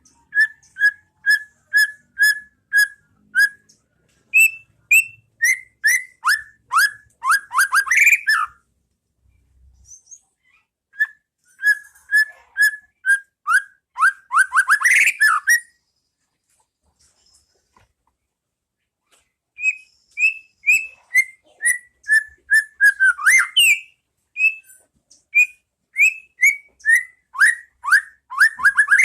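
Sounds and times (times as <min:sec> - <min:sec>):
bird singing whistled notes: 0:00.0 - 0:08.6, 0:11.0 - 0:15.8, 0:19.6 - 0:29.0.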